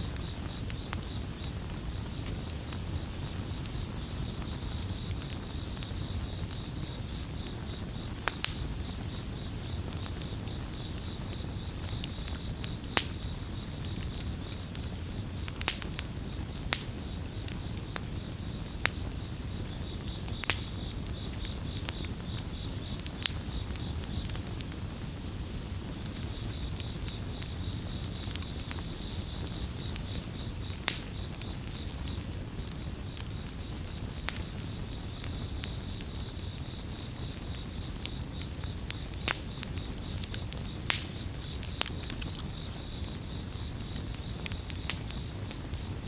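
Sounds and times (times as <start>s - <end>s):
campfire crackling and popping: 0.0s - 46.0s
crickets chirping: 0.0s - 46.0s.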